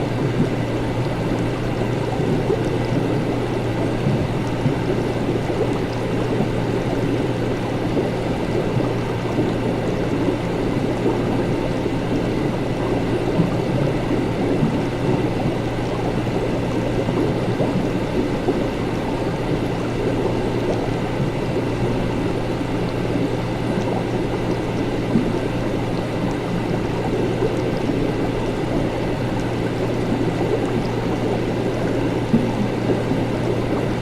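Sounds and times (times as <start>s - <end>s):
liquid bubbling and gurgling: 0.0s - 34.0s
steady low hum: 0.0s - 34.0s.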